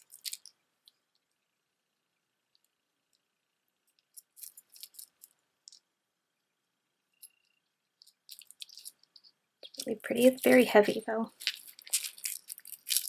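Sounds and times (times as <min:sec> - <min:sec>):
stones and chain links clicking: 0:00.0 - 0:00.5, 0:04.1 - 0:05.8, 0:07.2 - 0:10.6, 0:11.3 - 0:13.0.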